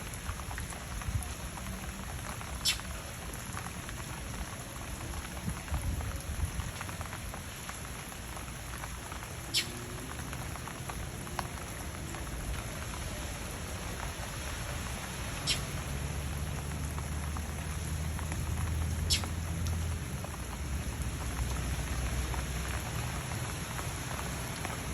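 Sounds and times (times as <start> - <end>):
rain pattering: 0.0 - 24.9.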